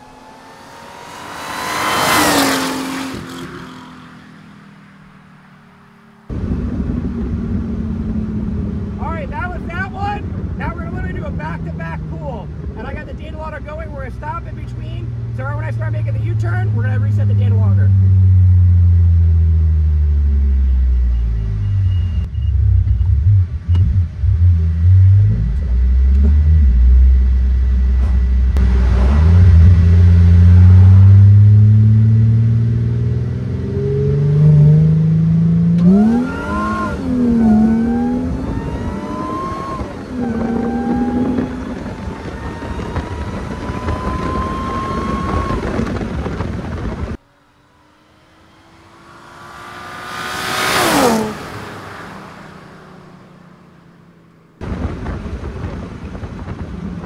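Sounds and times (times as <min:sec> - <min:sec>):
car engine revving through gears: 0:00.0 - 0:05.3, 0:15.0 - 0:54.6.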